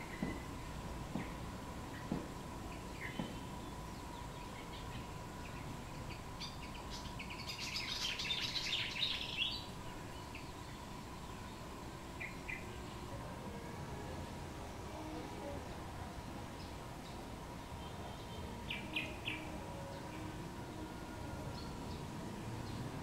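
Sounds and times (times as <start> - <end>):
songbird chirping: 0.0 - 23.0
faint high tone: 12.9 - 16.4.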